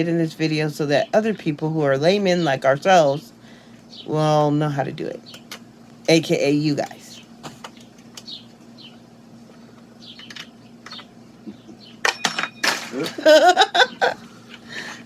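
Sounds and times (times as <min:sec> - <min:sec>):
metal parts clinking: 0:12.0 - 0:13.1.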